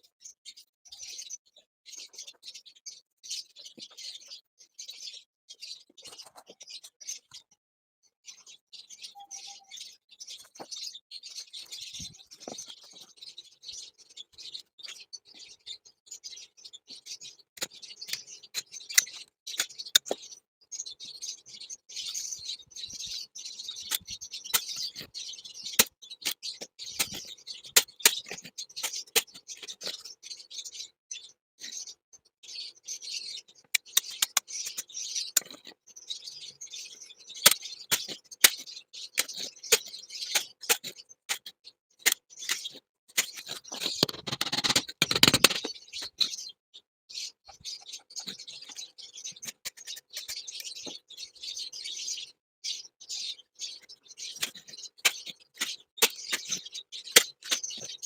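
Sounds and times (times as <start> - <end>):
small birds chirping: 0.0 - 58.0
sharp clicks and taps: 40.4 - 45.7.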